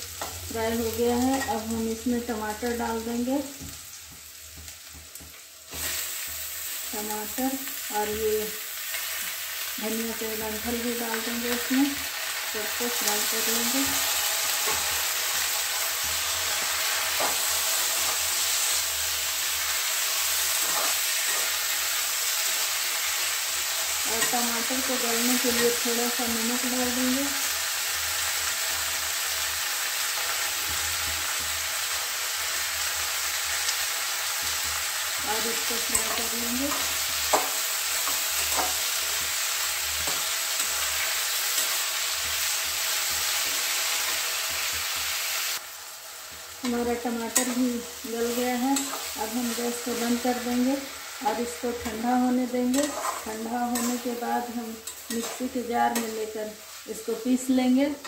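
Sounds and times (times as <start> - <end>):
vegetables sizzling in hot oil: 0.0 - 58.0
spatula scraping a pan: 20.4 - 21.8, 51.8 - 56.2.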